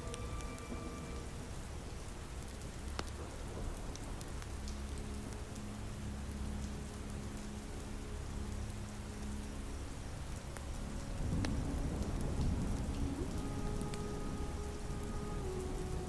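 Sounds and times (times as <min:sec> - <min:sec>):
ambient pad notes: 0:00.0 - 0:16.0
steady soft rain: 0:00.0 - 0:16.0.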